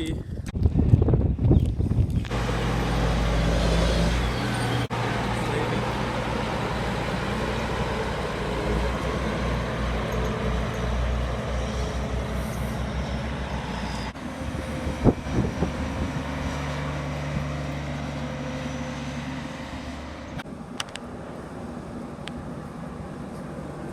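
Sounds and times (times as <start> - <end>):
vehicle engine running: 2.3 - 23.9.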